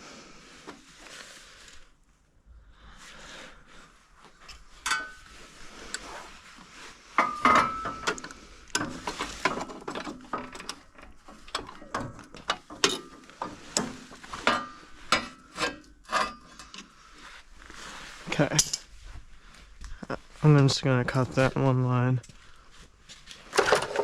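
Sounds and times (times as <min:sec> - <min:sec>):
hand tools clanking on metal: 0:04.8 - 0:05.3, 0:07.2 - 0:17.0, 0:18.4 - 0:18.9.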